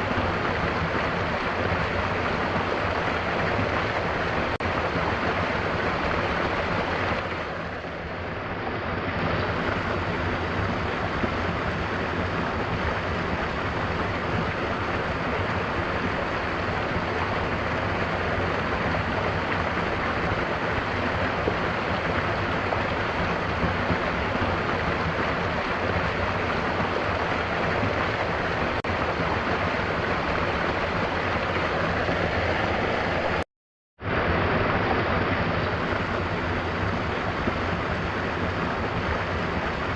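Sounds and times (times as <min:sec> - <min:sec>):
waterfall rushing: 0:00.0 - 0:33.4, 0:34.0 - 0:39.9.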